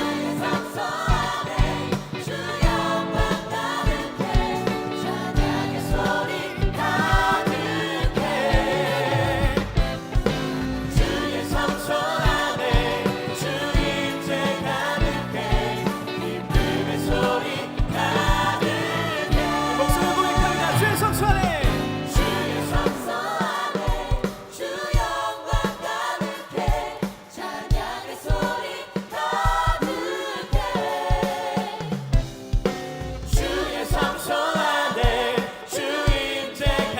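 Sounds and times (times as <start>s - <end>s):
band playing: 0.0s - 24.6s
group of singers: 0.0s - 36.9s
steady drum beat: 0.0s - 36.9s.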